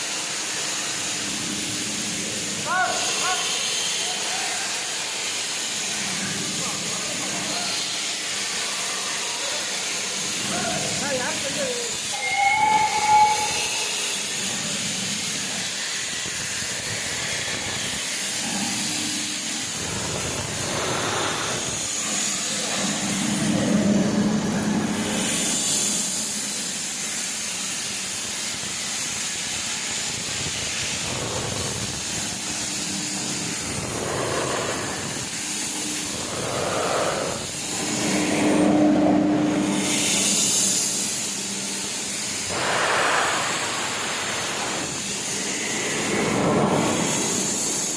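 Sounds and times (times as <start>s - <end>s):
steam locomotive hissing: 0.0s - 47.9s
low hum: 21.4s - 26.4s, 31.1s - 41.4s.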